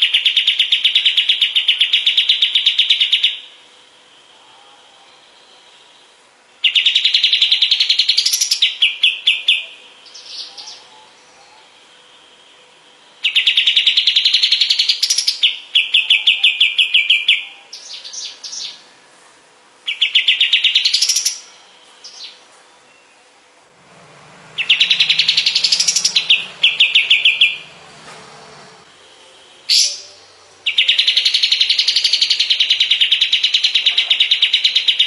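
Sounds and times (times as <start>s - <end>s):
songbird rattling trill: 6.6s - 10.8s, 19.9s - 22.4s, 24.5s - 27.9s.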